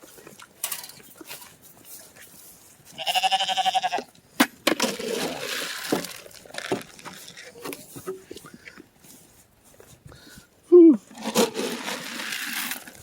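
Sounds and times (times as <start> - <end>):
rustling and scraping with knocks: 0.0 - 10.1, 11.0 - 13.0
farm animal bleating: 2.9 - 4.2.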